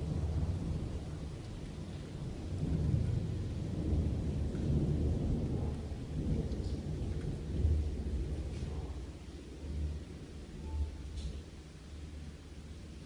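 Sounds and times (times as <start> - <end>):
thunder rumbling: 0.0 - 11.6
rain hiss: 0.0 - 13.0.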